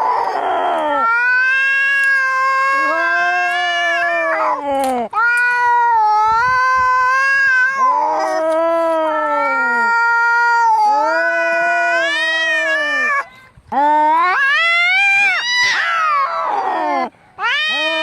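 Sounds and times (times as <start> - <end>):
cats yowling in a fight: 0.0 - 13.2, 13.9 - 18.0.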